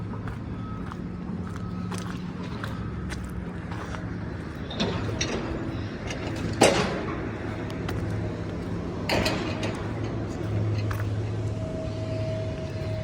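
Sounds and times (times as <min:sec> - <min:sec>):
engine running: 0:00.0 - 0:13.0
knocks and clanks: 0:04.4 - 0:11.7.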